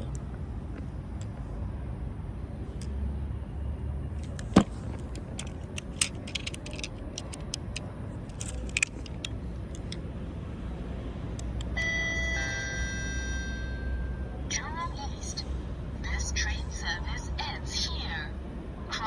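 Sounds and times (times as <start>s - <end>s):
plastic toy trains clacking: 4.2s - 10.0s.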